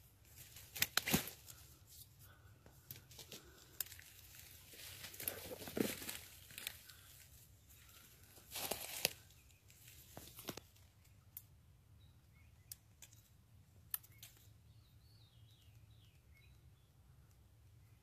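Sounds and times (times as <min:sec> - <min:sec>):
faint bird song: 0:00.0 - 0:18.0
faint sharp clicks: 0:13.9 - 0:14.5.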